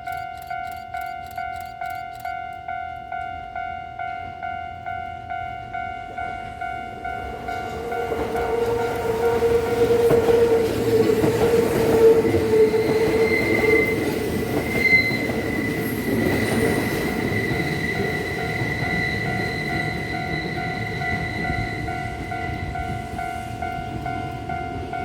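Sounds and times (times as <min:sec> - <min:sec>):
crossing warning bell pulsing: 0:00.0 - 0:25.0
electric train passing: 0:00.0 - 0:25.0
high wheel squeal: 0:08.9 - 0:22.2.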